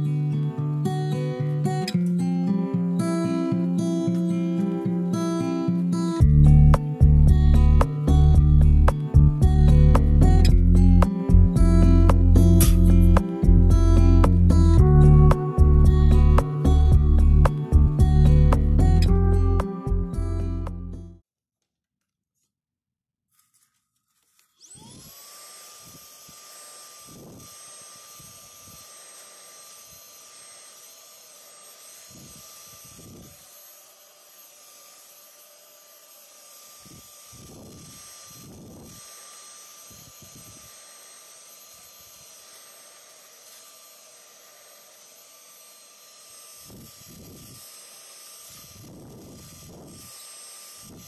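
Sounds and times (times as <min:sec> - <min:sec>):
electric appliance motor whining: 0:00.0 - 0:21.1, 0:24.4 - 0:51.0
low thumps: 0:06.2 - 0:21.0.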